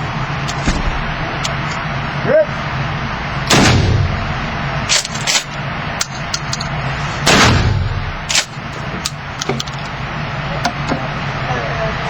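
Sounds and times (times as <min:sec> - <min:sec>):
shotgun blasts with echo: 0:03.5 - 0:06.3, 0:07.2 - 0:09.3.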